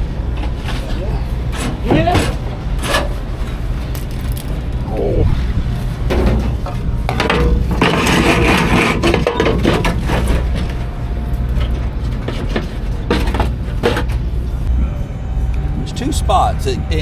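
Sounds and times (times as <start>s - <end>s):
steady low rumble: 0.0s - 17.0s
clattering: 6.1s - 14.7s.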